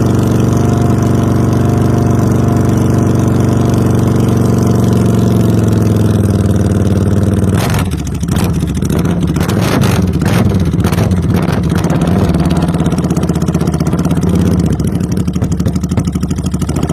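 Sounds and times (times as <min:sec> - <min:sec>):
motorcycle engine revving: 0:00.0 - 0:16.9
exhaust cracks: 0:07.5 - 0:16.9.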